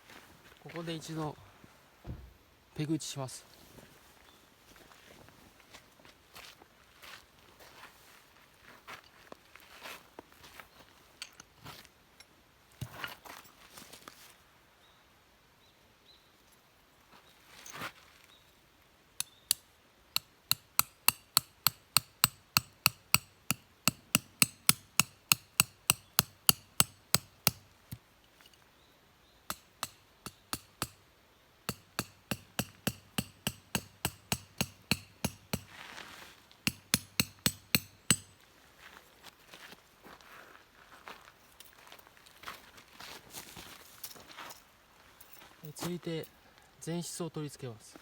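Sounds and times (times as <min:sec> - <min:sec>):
hammer striking tent pegs: 0:20.2 - 0:27.7, 0:29.5 - 0:31.0, 0:31.7 - 0:35.7, 0:36.6 - 0:38.4.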